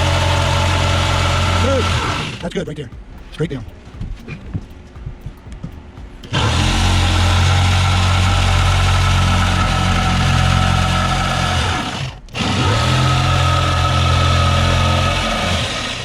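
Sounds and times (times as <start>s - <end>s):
electric power saw cutting wood: 0.0s - 2.5s, 6.2s - 16.0s.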